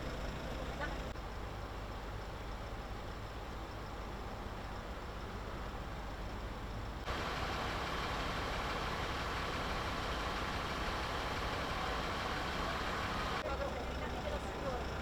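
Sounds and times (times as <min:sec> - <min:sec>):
vehicle engine idling: 0:00.0 - 0:15.0
street noise: 0:07.1 - 0:15.0.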